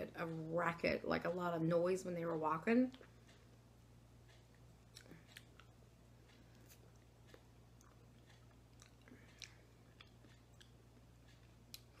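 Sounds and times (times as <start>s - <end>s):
person chewing with wet clicks: 2.9s - 3.6s, 4.2s - 12.0s.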